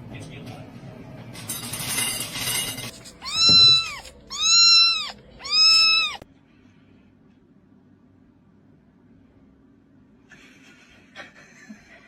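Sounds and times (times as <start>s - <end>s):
cat meowing: 3.2s - 6.3s.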